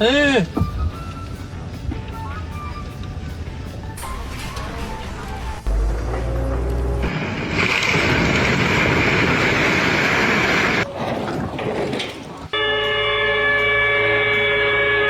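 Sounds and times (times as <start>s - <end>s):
loud rushing noise: 3.8s - 10.8s
multi-tone horn: 12.5s - 15.0s.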